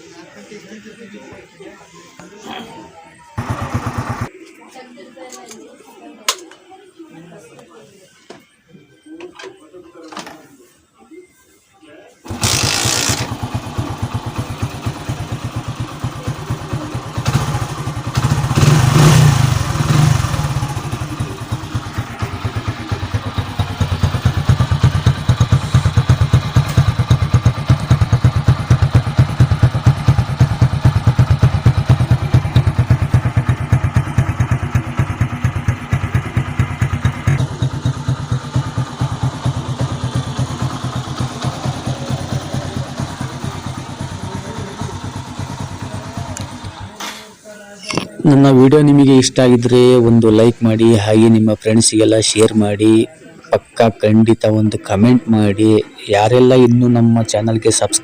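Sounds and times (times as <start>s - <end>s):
motorcycle engine idling and revving: 3.4s - 4.4s, 12.3s - 47.0s.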